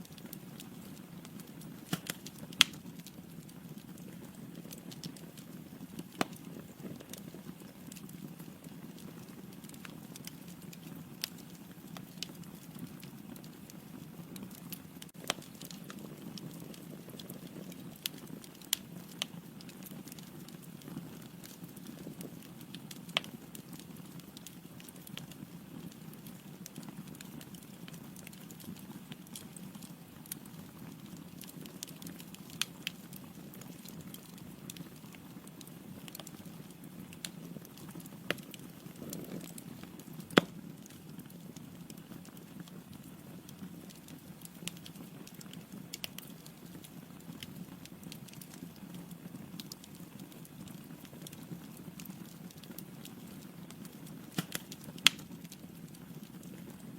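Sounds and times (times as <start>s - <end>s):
fire burning with crackles: 0.0s - 56.9s
sharp pops of burning logs: 0.2s - 13.7s, 14.4s - 20.6s, 21.2s - 25.1s, 31.4s - 41.1s, 43.9s - 46.7s, 53.8s - 56.2s.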